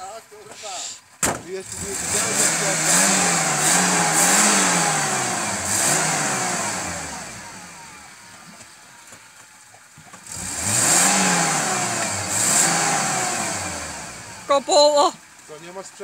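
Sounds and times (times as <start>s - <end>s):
engine revving: 0.5s - 8.4s, 10.2s - 14.7s.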